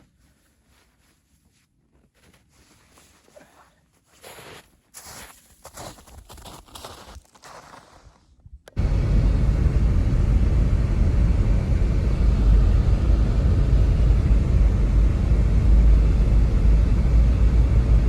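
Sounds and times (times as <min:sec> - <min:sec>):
loud snowstorm wind: 0:08.8 - 0:18.0.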